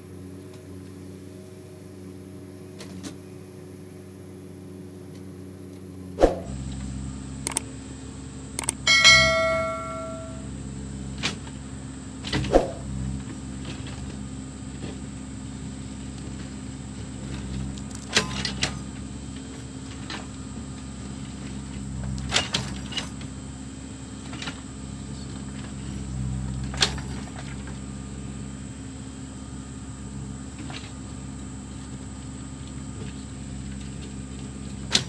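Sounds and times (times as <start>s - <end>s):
diesel engine running: 6.5s - 8.9s, 10.4s - 35.0s
sharp metallic knocks: 8.8s - 10.5s.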